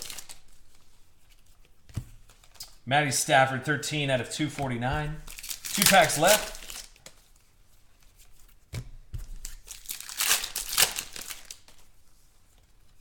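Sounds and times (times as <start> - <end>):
card pack wrapper crinkling and tearing: 0.0 - 0.5, 5.2 - 7.2, 9.4 - 11.8.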